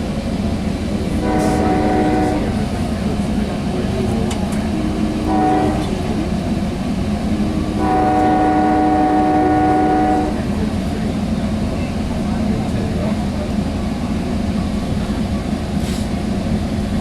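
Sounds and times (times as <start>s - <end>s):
train rumbling on rails: 0.0s - 17.0s
train horn blasts: 1.2s - 2.6s, 4.7s - 6.3s, 7.3s - 10.5s.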